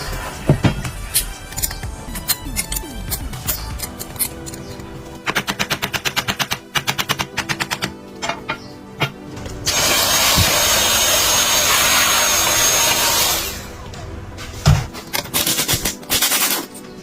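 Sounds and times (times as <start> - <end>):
power tool hissing and whining: 9.7 - 13.7.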